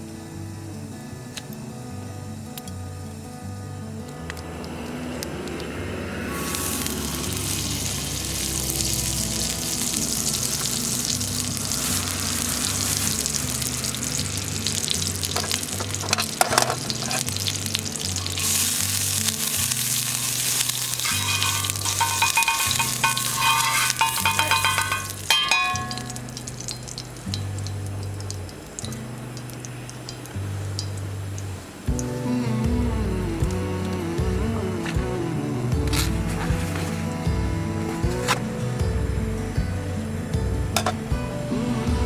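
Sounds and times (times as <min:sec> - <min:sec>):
background music with bass line: 0:00.0 - 0:42.0
food sizzling in frying: 0:04.2 - 0:32.7.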